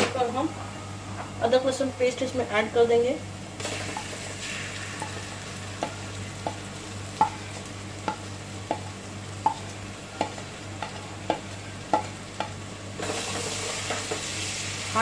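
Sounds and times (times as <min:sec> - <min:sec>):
onions frying in hot oil: 0:03.3 - 0:15.0
spoon knocking on a pot: 0:08.0 - 0:12.6.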